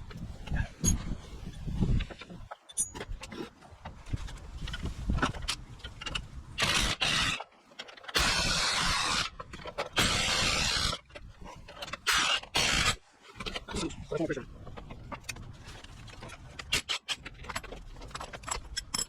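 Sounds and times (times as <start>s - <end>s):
impact wrench bursts: 8.2s - 9.4s, 10.0s - 11.0s, 12.1s - 13.0s.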